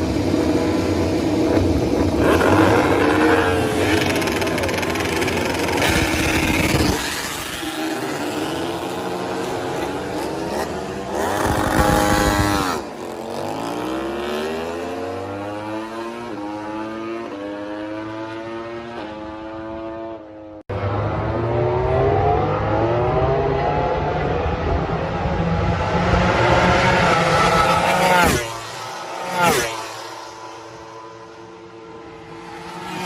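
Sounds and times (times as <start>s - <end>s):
race motorcycle engines revving: 0.0s - 33.0s.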